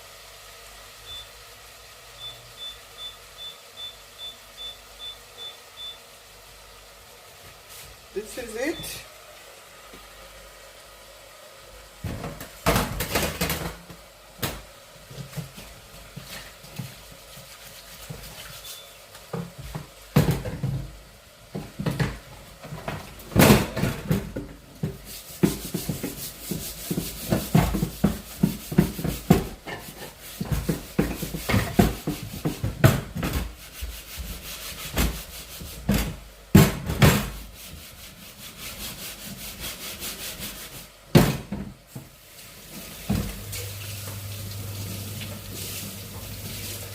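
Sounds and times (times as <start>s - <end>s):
kitchen utensils scraping: 25.0s - 36.2s.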